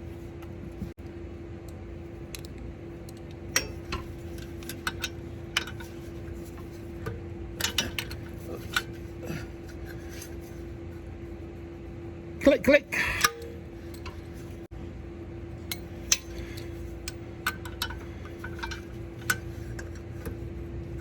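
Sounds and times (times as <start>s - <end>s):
steady low hum: 0.0s - 21.0s
metal tools clinking on metal: 3.5s - 6.8s, 7.6s - 10.4s, 12.9s - 14.6s, 15.6s - 20.3s.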